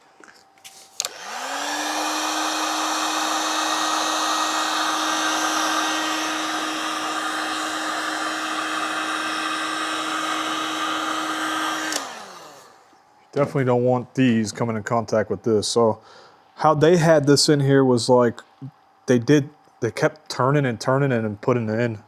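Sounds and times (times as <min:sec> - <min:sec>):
heat gun fan whine and air rush: 0:00.7 - 0:14.8
heat gun switch click: 0:01.0 - 0:01.6, 0:11.8 - 0:12.6.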